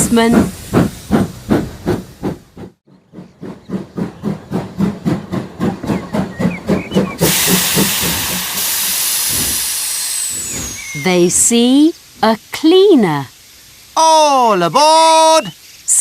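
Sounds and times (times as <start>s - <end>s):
steam locomotive chuffing: 0.0s - 11.8s
steam hissing: 0.0s - 16.0s.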